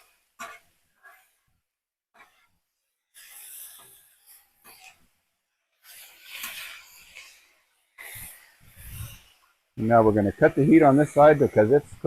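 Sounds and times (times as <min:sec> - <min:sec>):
metal spatulas scraping griddle: 0:00.0 - 0:01.4, 0:03.1 - 0:05.1, 0:05.8 - 0:11.8
food sizzling: 0:03.1 - 0:05.2, 0:05.8 - 0:12.0.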